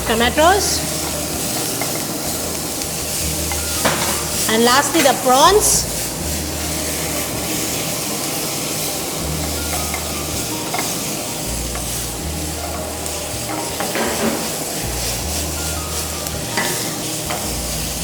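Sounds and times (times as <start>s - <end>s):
food sizzling in a hot pan: 0.0s - 18.0s
utensil tapping a pan: 0.4s - 18.0s.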